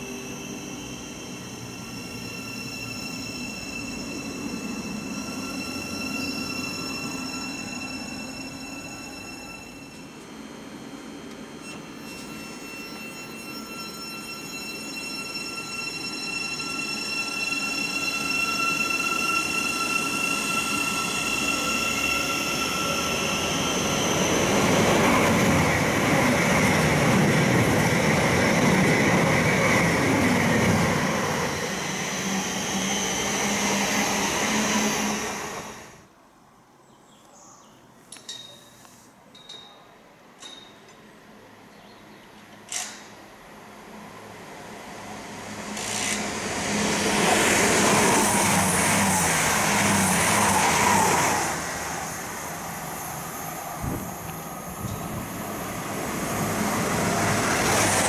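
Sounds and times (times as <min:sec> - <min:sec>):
train rumbling past: 0:00.0 - 0:36.2, 0:41.2 - 0:58.0
train high whine: 0:00.0 - 0:36.4, 0:40.4 - 0:58.0.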